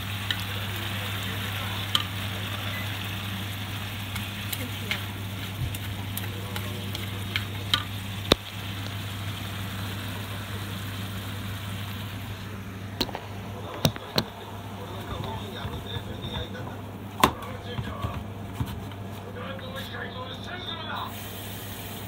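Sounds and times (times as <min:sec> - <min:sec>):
food sizzling in a frying pan: 0:00.0 - 0:12.8, 0:21.1 - 0:22.0
steady low hum: 0:00.0 - 0:22.0
chopsticks clicking against pan: 0:01.9 - 0:02.2, 0:05.7 - 0:08.9.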